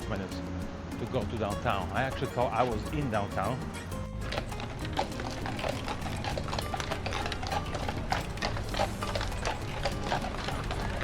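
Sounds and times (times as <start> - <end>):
footsteps on hard pavement: 3.6 - 11.0.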